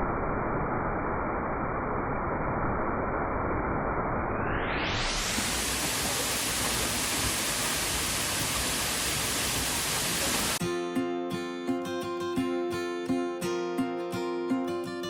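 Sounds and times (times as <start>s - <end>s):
waterfall rushing: 4.9s - 10.6s
strummed acoustic guitar music: 10.6s - 15.0s.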